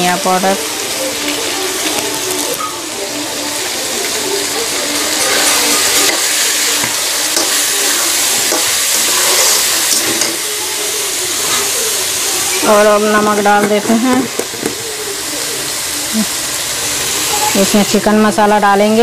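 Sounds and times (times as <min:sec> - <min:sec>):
food sizzling in a wok: 0:00.0 - 0:19.0
metal spatula scraping pan: 0:07.3 - 0:10.4.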